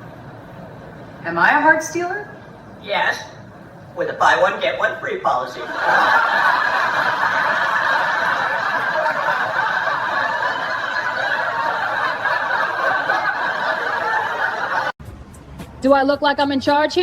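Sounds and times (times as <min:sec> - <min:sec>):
audience laughing: 0:05.4 - 0:15.0.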